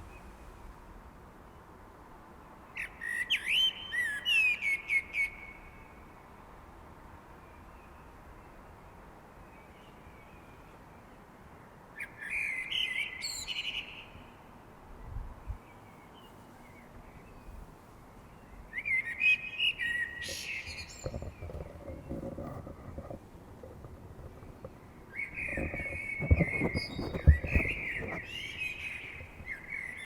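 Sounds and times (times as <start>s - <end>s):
faint steady hiss: 0.0s - 30.0s
songbird singing: 12.0s - 30.0s.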